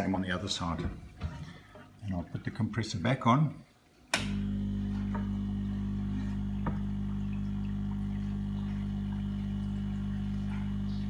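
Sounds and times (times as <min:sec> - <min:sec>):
air compressor humming: 0:04.2 - 0:11.0.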